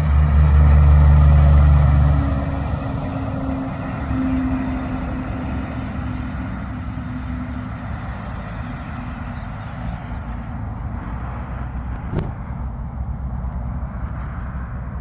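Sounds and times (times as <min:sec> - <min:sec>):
truck engine rumble: 0:00.0 - 0:15.0.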